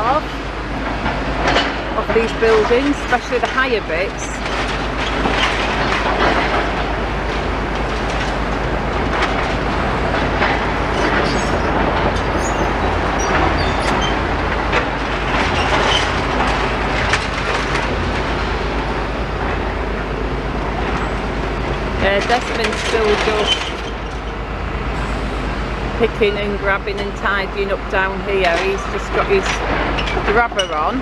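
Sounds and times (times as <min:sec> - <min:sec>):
excavator engine and track rumble: 0:00.0 - 0:31.0.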